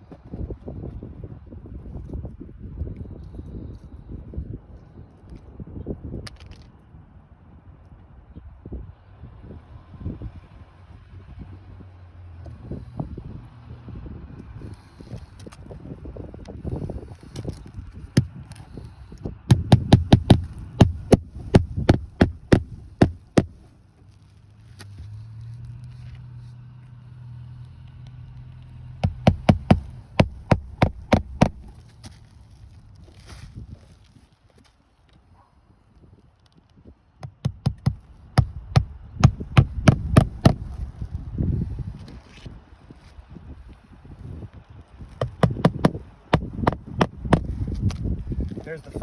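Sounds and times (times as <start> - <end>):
hammer striking nails: 19.5 - 23.6, 29.0 - 31.8, 37.2 - 40.8, 45.2 - 47.6
soft shuffling: 29.2 - 34.9.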